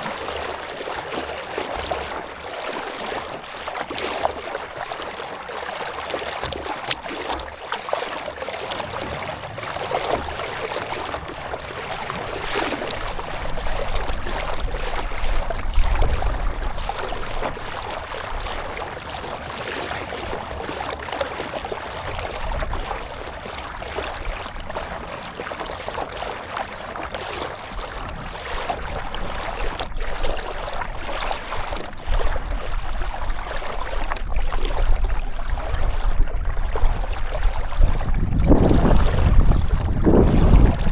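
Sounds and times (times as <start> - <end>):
water splashing around a canoe: 0.0 - 40.9
wind rumble on microphone: 8.6 - 40.9.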